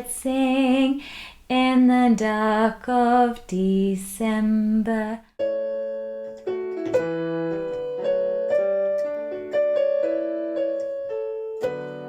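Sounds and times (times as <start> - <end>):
piano playing: 5.4 - 12.0.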